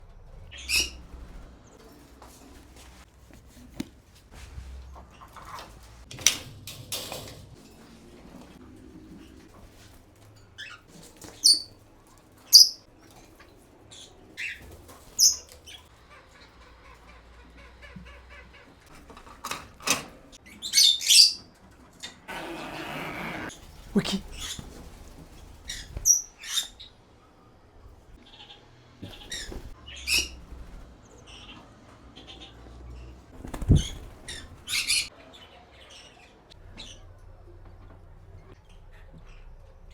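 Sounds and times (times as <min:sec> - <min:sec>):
parrot squawking and chirping: 0:12.5 - 0:12.8.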